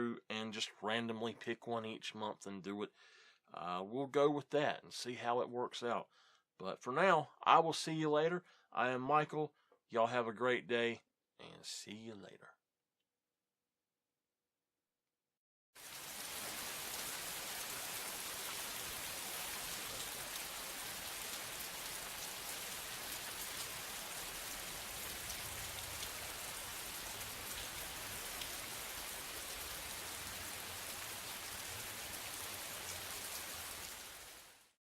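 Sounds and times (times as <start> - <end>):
rain hissing on a surface: 15.8 - 34.8.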